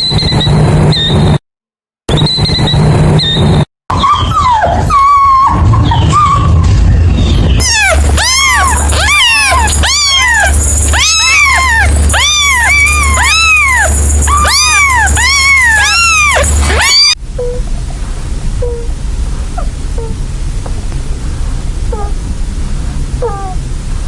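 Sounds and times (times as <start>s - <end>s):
low hum: 2.1s - 24.0s
animal calling: 3.9s - 17.6s.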